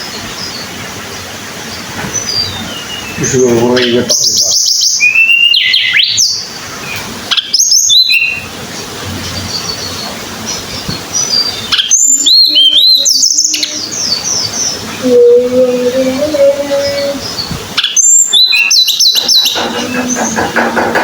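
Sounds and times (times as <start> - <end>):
songbird whistled notes: 4.2 - 6.4, 7.3 - 8.4, 11.2 - 14.7, 17.0 - 20.4.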